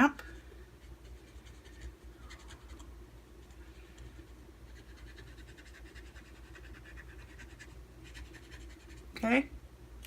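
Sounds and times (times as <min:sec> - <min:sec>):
marker brush scratching on stamp: 0:00.8 - 0:09.2.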